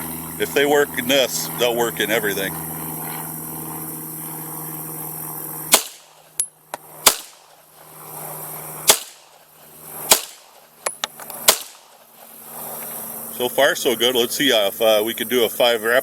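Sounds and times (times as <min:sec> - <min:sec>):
steady low hum: 0:00.0 - 0:16.0
pistol shots: 0:05.7 - 0:06.4, 0:07.0 - 0:07.6, 0:08.8 - 0:09.4, 0:10.1 - 0:10.7, 0:11.4 - 0:12.0.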